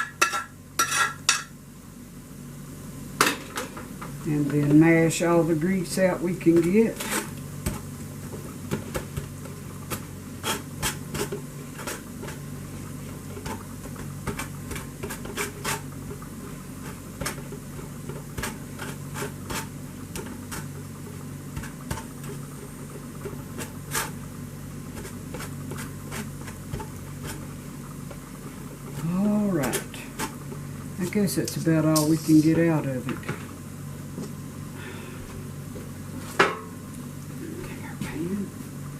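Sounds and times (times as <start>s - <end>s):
steady low hum: 0.0s - 38.9s
spoon scraping a strainer: 0.2s - 1.4s.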